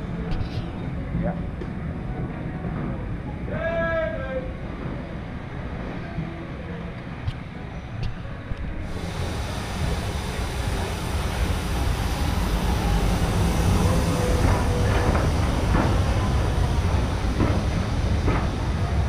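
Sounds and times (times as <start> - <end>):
train rolling rumble: 0.0 - 19.0.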